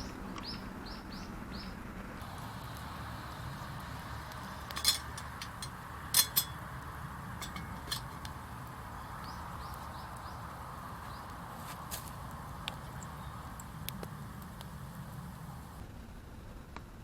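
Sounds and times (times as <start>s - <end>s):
utensils clinking on cookware: 4.7s - 6.6s, 7.3s - 8.3s.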